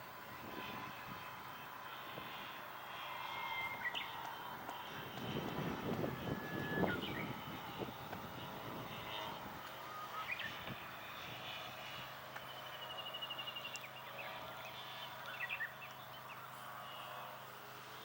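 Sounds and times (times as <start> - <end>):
model airplane motor: 0.0 - 18.0
birds chirping: 3.3 - 11.2, 11.8 - 17.3.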